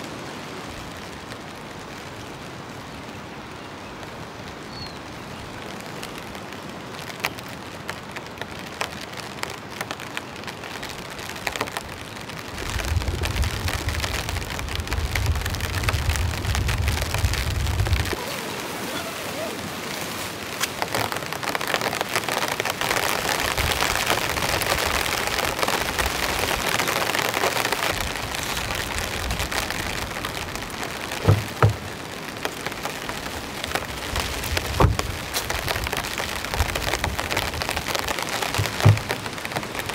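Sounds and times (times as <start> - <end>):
heavy rain pattering: 0.0 - 39.9
sharp thumps: 31.2 - 31.9.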